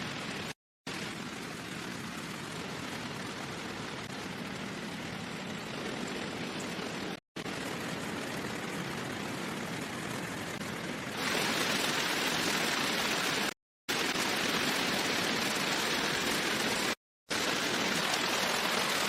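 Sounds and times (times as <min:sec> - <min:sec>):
steady rain hissing: 0:00.0 - 0:19.0.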